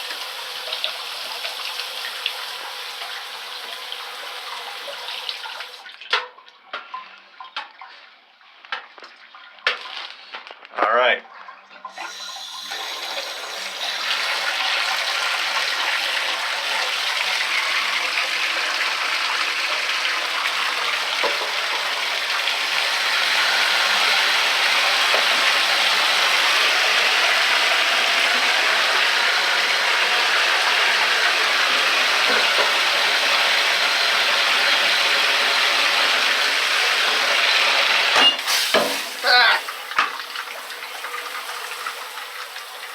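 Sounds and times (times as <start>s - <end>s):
water running from faucet: 0.0s - 6.0s, 11.9s - 42.9s.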